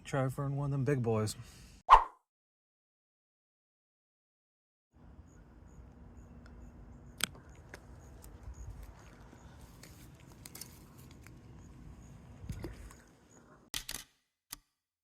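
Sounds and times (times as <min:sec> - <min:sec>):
cricket-like insect chirping: 0:05.2 - 0:07.3, 0:07.9 - 0:09.6, 0:11.5 - 0:13.5.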